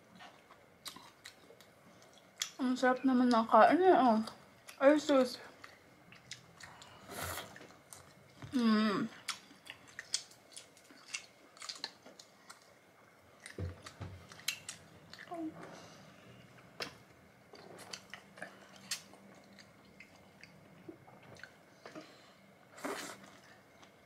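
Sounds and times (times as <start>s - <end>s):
chewing and smacking: 0.1s - 2.6s, 5.6s - 8.5s, 9.2s - 12.8s, 13.4s - 15.4s, 16.6s - 22.1s.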